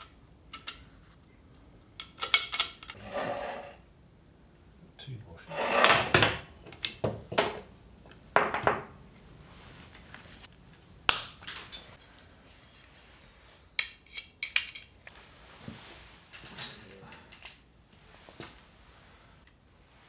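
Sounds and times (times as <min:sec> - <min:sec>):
metal tools clinking and knocking: 0:11.4 - 0:12.0.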